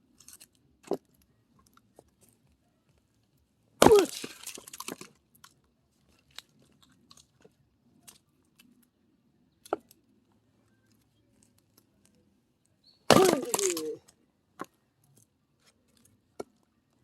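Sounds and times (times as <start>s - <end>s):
axe strikes: 3.8s - 4.4s, 13.1s - 14.0s
firewood knocks and crunches: 3.8s - 5.2s, 13.1s - 14.0s.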